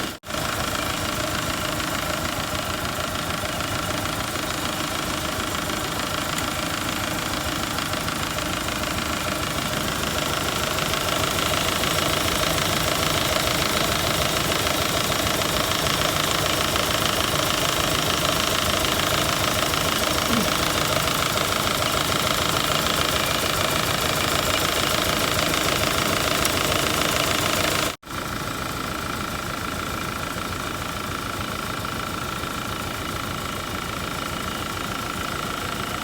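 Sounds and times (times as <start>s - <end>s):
car engine clattering: 0.0s - 28.0s.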